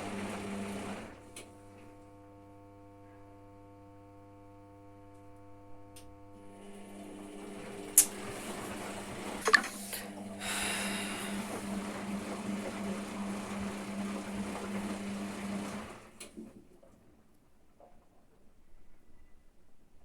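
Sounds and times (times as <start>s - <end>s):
washing machine click: 9.4s - 10.1s.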